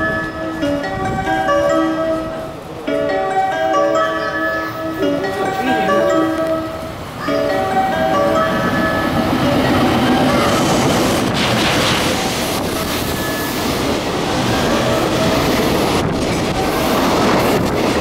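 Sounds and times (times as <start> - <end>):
freight train rumbling past: 0.0 - 18.0
wheels clattering over rails: 5.0 - 18.0.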